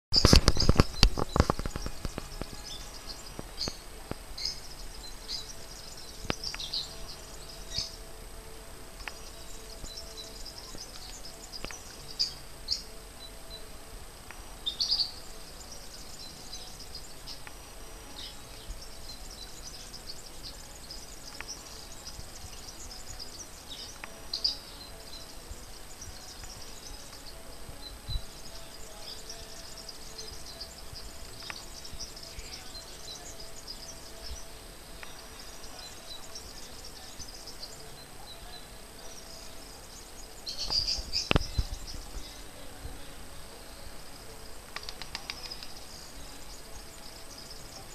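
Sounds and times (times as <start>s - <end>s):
small birds chirping: 0.0s - 47.9s
outdoor hiss: 0.1s - 47.9s
low rumbling on microphone: 40.6s - 44.4s.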